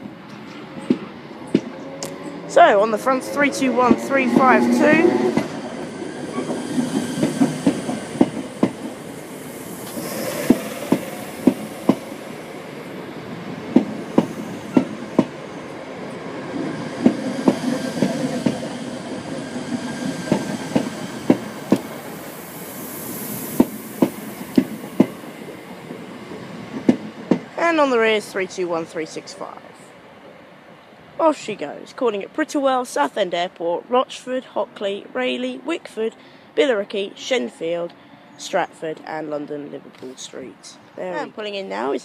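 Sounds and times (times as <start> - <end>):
train running rumble: 0.8 - 12.5.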